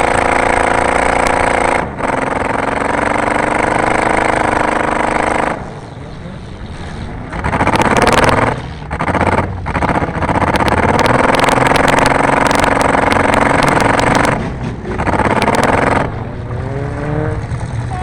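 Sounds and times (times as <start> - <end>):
car engine at high revs: 0.0 - 18.0
sharp rattling clicks: 7.3 - 16.1.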